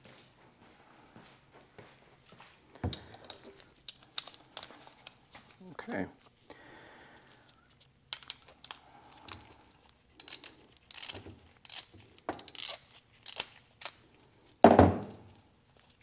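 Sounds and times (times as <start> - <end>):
metal tools clicking and scraping: 8.1 - 14.0.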